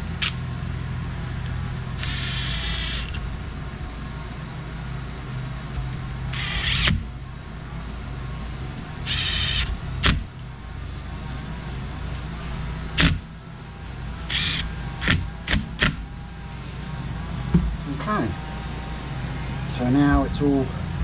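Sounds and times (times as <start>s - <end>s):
steady low hum: 0.0s - 21.0s
actuator hissing whirs: 2.0s - 3.6s, 6.3s - 7.1s, 8.9s - 10.3s, 14.2s - 16.1s
sharp clicks and knocks: 15.0s - 16.0s.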